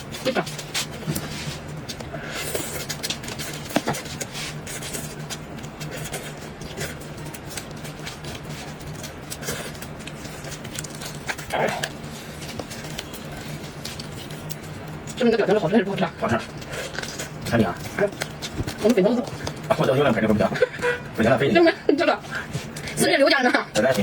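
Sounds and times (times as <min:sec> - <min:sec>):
wet chewing with mouth clicks: 0:00.1 - 0:15.2.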